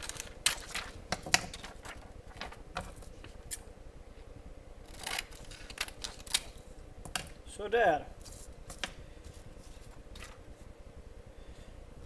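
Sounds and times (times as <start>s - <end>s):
plastic sheet crinkling: 0.0s - 3.2s.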